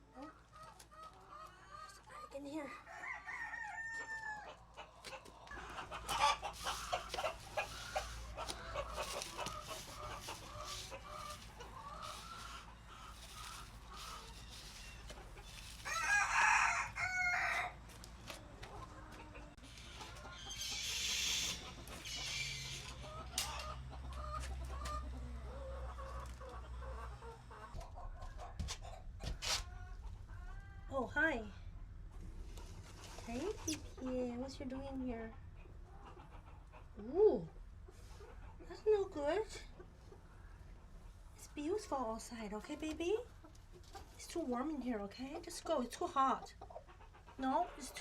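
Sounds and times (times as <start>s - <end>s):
chickens clucking: 0.0s - 48.0s
rooster crowing: 2.9s - 4.5s, 15.8s - 17.8s
rustling: 5.4s - 16.4s.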